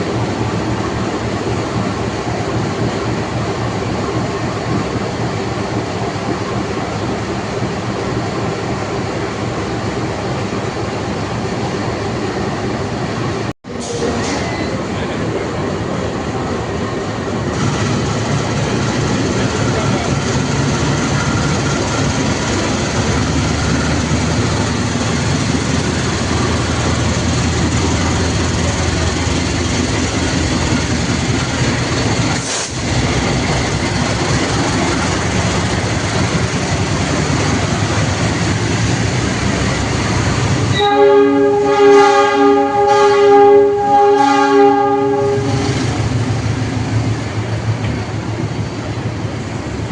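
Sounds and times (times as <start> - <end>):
train wheels rumbling on rails: 0.0 - 49.9
train horn blasts: 40.7 - 45.9.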